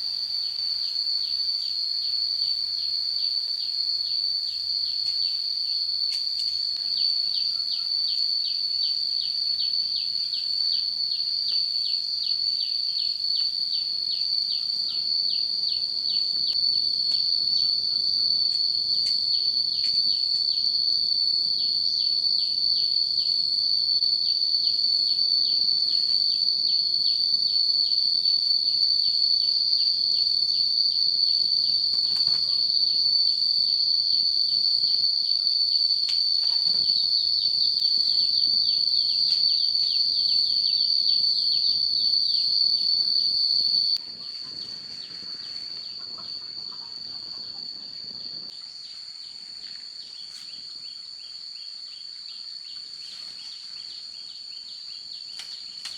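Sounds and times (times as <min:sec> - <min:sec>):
insects chirping in chorus: 0:00.0 - 0:55.9.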